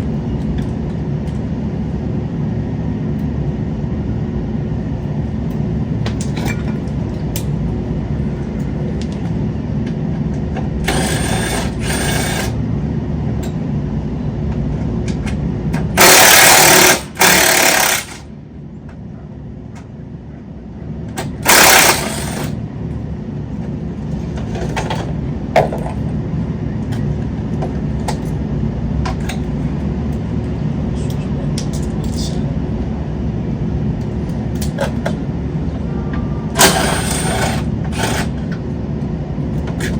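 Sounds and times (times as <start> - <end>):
steady low hum: 0.0 - 39.9
power wrench bursts: 10.9 - 12.6, 16.0 - 18.2, 21.4 - 22.6, 36.6 - 38.3.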